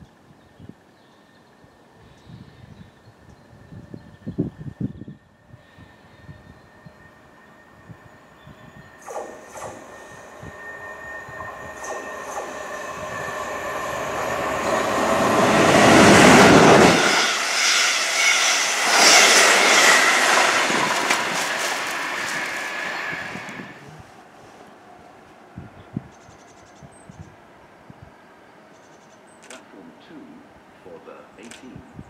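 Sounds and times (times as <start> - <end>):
train rushing past: 3.6 - 25.6.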